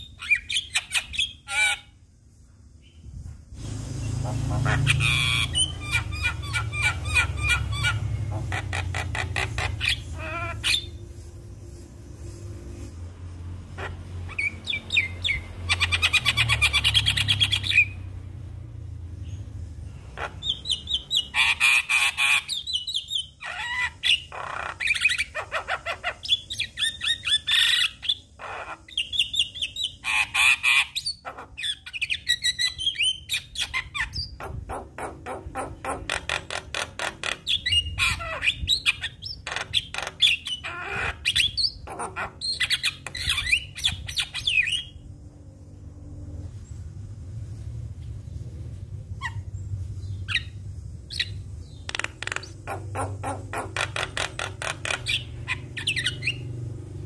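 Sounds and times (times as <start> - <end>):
bird clicks: 51.9 - 53.1.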